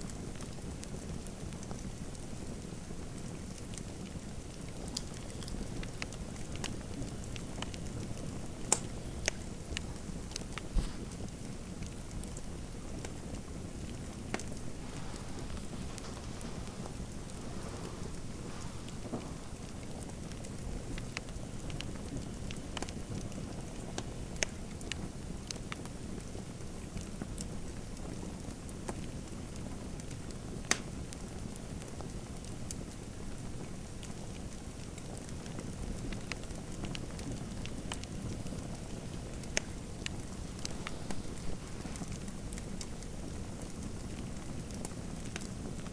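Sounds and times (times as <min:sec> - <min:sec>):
wood fire crackling: 0:00.0 - 0:45.9
sharp pops of fire: 0:03.5 - 0:21.2, 0:30.7 - 0:31.0.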